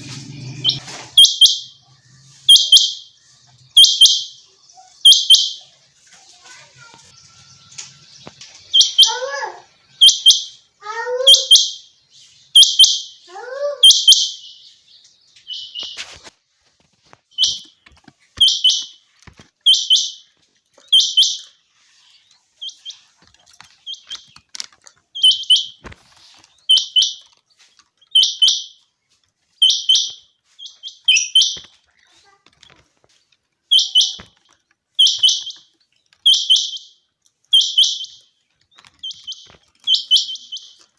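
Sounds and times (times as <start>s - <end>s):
lower calls falling in pitch: 8.8s - 11.7s
quail calling: 33.7s - 34.3s.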